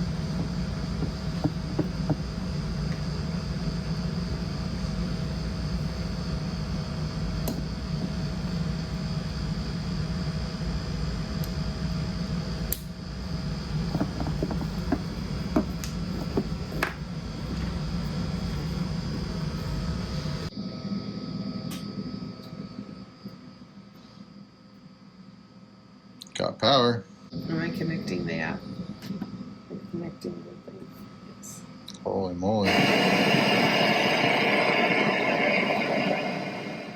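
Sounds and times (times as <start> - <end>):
low machine hum: 0.0 - 20.6, 32.6 - 36.9
faint steady whine: 0.0 - 31.9, 32.6 - 36.9.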